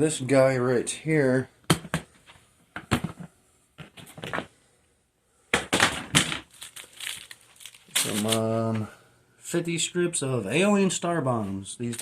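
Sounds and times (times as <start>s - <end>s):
paper packaging rustling and crinkling: 6.1s - 8.9s, 11.8s - 12.0s.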